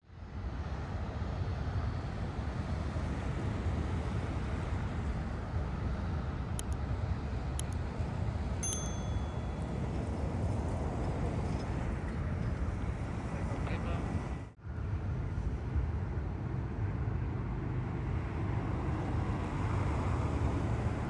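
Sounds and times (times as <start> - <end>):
brief high tone: 8.6 - 10.0.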